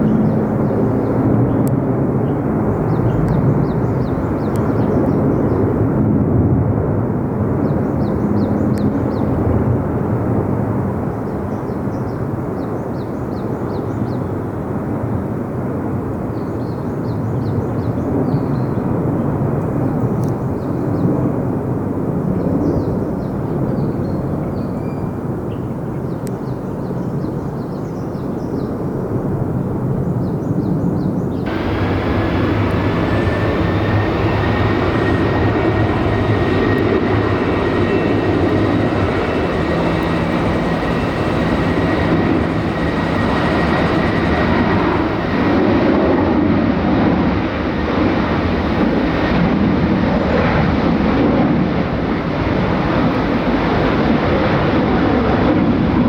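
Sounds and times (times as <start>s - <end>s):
jet engines roaring: 31.5s - 56.0s.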